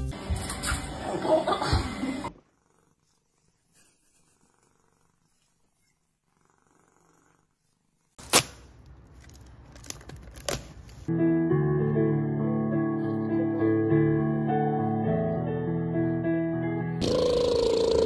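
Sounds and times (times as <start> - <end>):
cat purring: 2.3 - 8.2.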